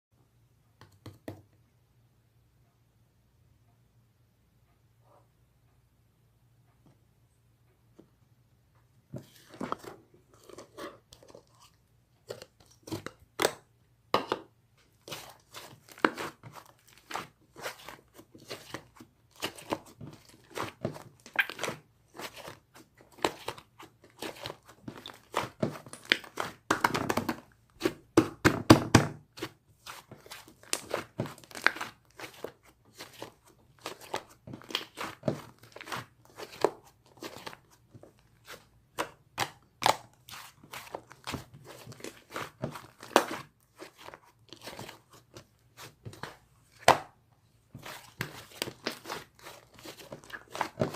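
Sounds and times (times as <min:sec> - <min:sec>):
slime crackling and popping: 0:33.8 - 0:35.8.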